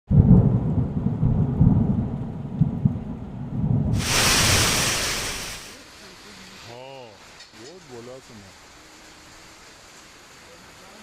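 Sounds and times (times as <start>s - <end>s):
thunder rumbling: 0.1s - 5.8s
rain: 0.1s - 11.0s
loud hiss: 3.9s - 11.0s.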